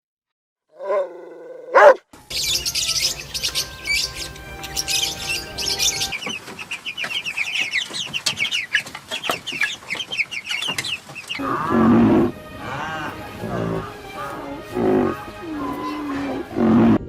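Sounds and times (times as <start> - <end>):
bird call rising and falling: 0.8 - 8.7
birds chirping: 0.8 - 17.0.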